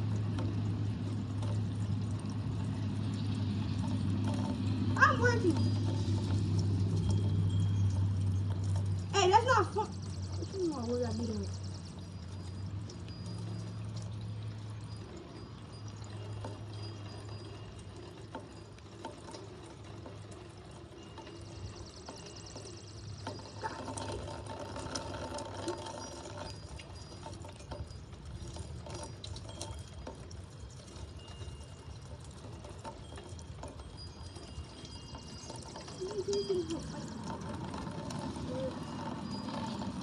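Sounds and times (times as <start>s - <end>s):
rainwater pouring from gutter: 0.0s - 40.0s.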